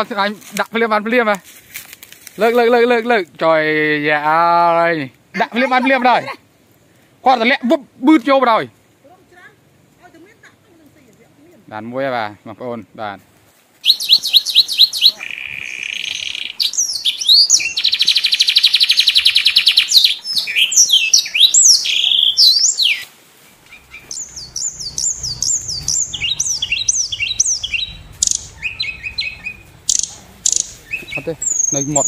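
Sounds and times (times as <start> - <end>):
birds chirping and trilling: 13.8 - 32.0.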